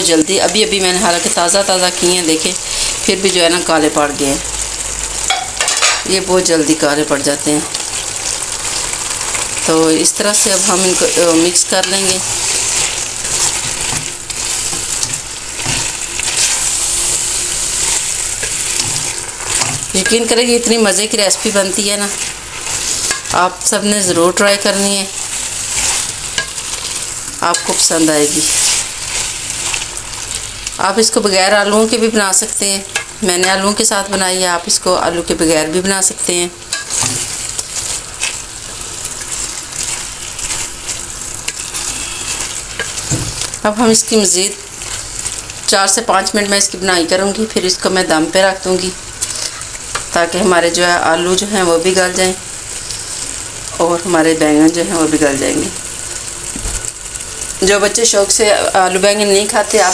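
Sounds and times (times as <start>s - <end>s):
vegetables sizzling in hot oil: 0.0s - 59.9s
wooden spatula stirring: 10.4s - 23.4s, 36.7s - 43.6s.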